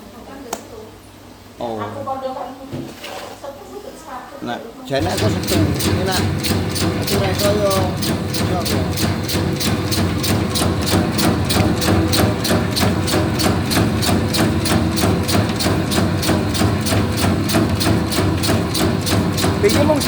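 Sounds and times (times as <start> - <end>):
machine motor hum: 5.0 - 20.0
rapid machine clicking: 5.0 - 20.0.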